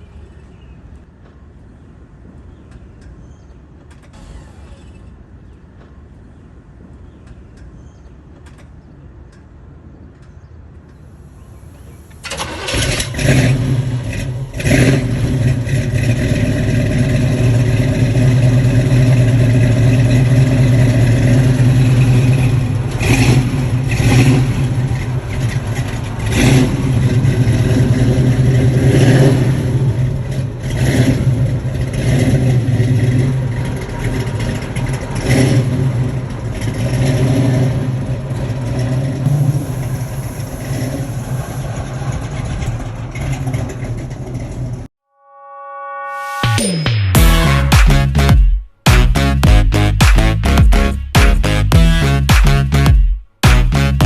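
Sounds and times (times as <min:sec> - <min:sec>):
vehicle engine starting and revving: 0:11.8 - 0:44.9, 0:47.2 - 0:54.0.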